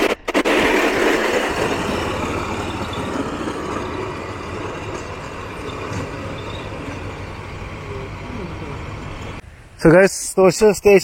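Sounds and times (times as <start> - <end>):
vehicle engine running: 1.6 - 9.4.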